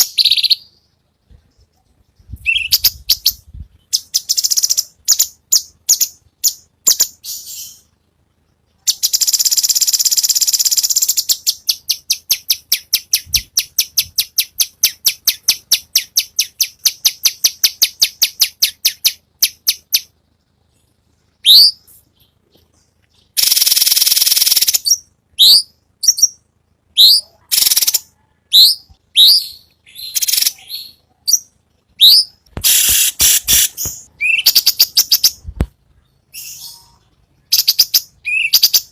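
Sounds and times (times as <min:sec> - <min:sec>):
bird harsh buzzy rattle: 0:23.4 - 0:24.8, 0:32.6 - 0:35.6
bird quick repeated chips: 0:32.5 - 0:35.6.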